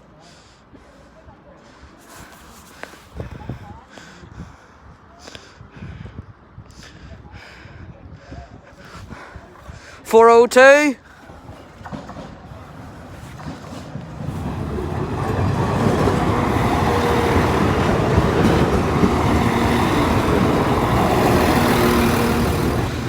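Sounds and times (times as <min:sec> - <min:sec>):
diesel train passing: 0:11.2 - 0:23.0.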